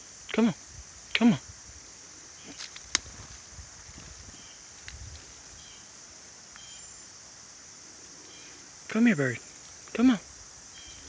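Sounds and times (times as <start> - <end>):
high-pitched insect chorus: 0.0 - 11.0
small ticks: 2.4 - 5.4, 6.5 - 6.7.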